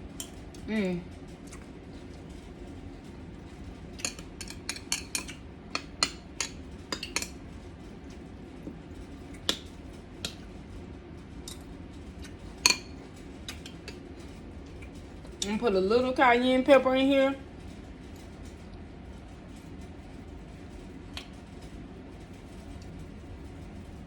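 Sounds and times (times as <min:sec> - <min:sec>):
utensils clinking against dishes: 0:04.0 - 0:07.4, 0:12.5 - 0:15.4.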